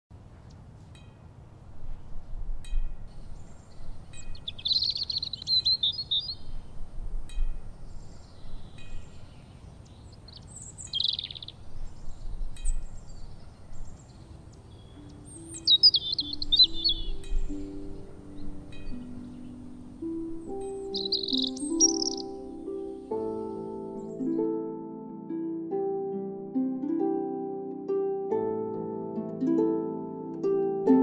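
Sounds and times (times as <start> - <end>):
small birds chirping: 0.3 - 24.5.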